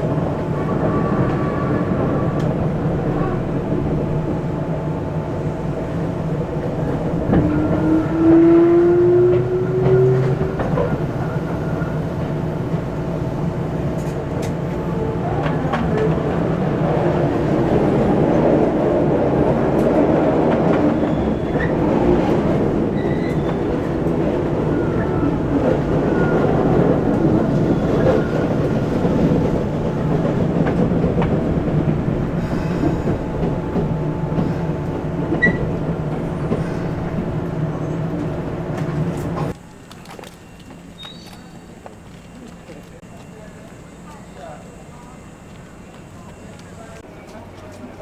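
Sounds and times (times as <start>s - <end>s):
train running hum: 0.0s - 48.0s
high wheel squeals: 20.9s - 29.5s, 34.3s - 38.0s.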